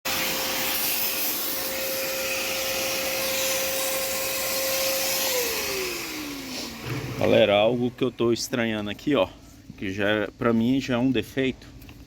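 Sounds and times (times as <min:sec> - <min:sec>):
vacuum cleaner running: 0:00.1 - 0:08.4.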